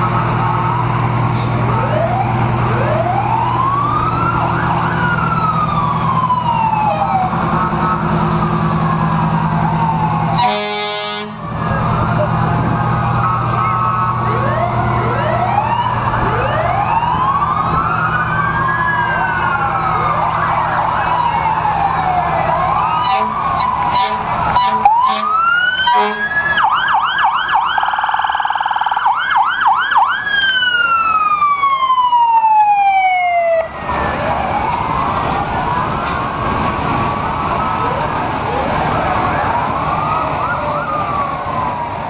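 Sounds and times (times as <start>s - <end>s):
emergency sirens wailing: 0.0s - 42.0s
truck engines humming: 0.0s - 42.0s.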